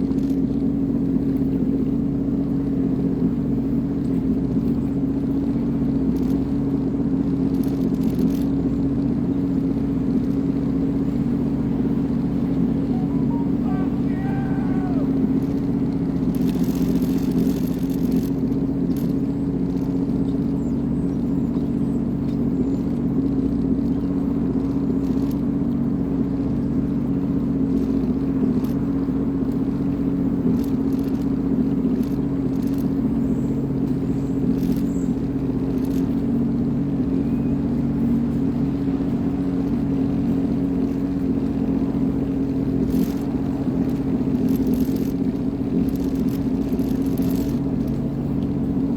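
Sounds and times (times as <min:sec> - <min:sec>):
personal watercraft engine droning: 0:00.0 - 0:48.9.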